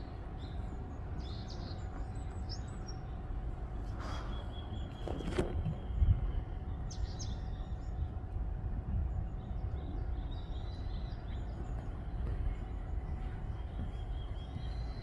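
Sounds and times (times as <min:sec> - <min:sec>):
wind buffeting microphone: 0:04.7 - 0:15.0.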